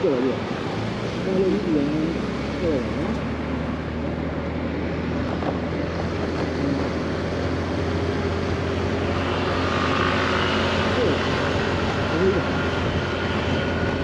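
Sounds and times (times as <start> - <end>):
wind and road noise: 0.0 - 14.0
scooter engine running: 5.9 - 14.0.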